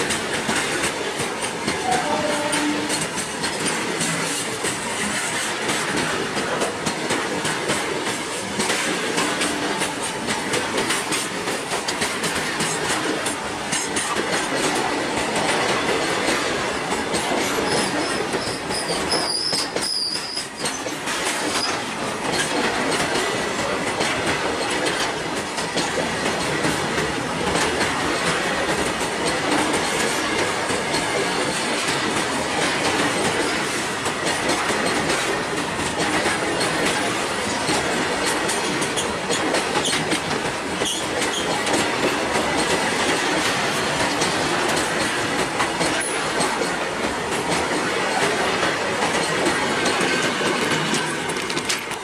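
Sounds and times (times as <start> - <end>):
clickety-clack over rail joints: 0.0 - 52.0
steel wheels on rails: 0.0 - 52.0
wheel squeal: 17.7 - 21.8.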